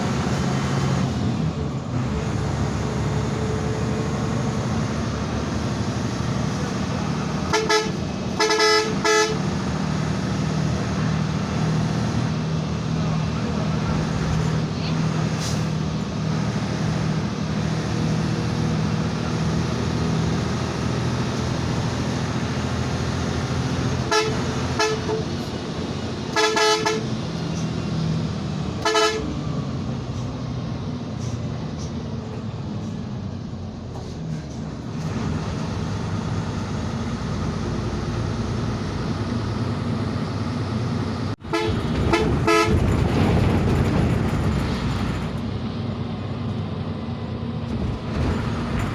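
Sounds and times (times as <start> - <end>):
bus engine running: 0.0 - 48.9
vehicle horn honks: 7.5 - 9.4, 24.1 - 25.2, 26.3 - 27.1, 28.8 - 29.3, 41.5 - 42.8.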